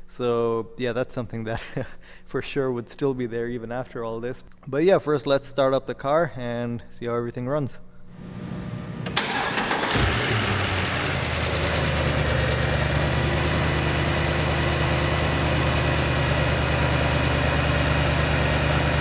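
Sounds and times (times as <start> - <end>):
car engine starting and idling: 8.2 - 19.0.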